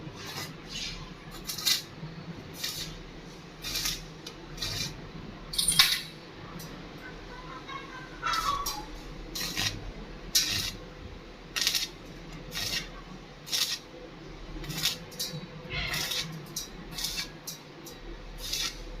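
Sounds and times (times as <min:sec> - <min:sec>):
scraping on steel pipe: 0:14.7 - 0:16.3.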